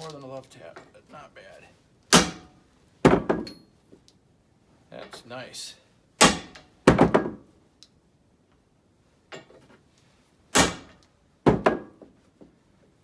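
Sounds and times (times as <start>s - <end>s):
metallic knocks and clanks: 2.1s - 3.7s, 6.2s - 7.4s.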